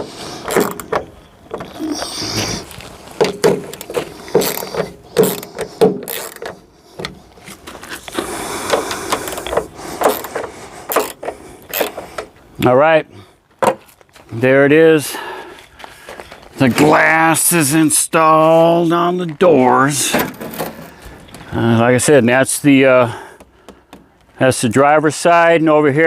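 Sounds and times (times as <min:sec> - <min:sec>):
hand tools clicking and rattling: 0:00.0 - 0:07.2, 0:08.6 - 0:12.3.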